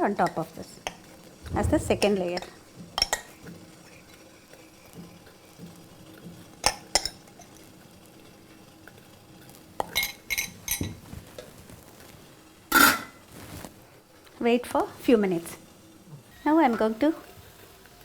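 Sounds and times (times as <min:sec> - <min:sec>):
metal utensils clinking on metal: 0:09.8 - 0:10.9.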